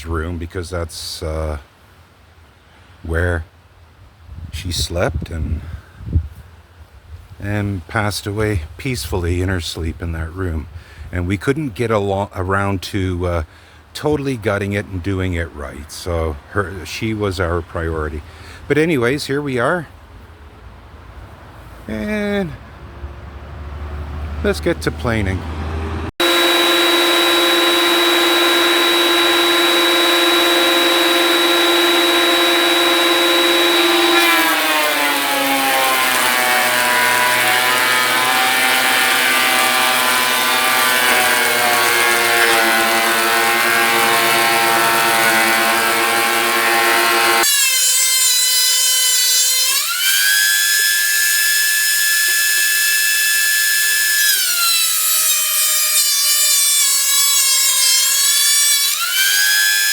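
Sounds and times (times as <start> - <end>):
planer cutting board: 26.2 - 50.4
thickness planer motor whine: 26.2 - 59.9.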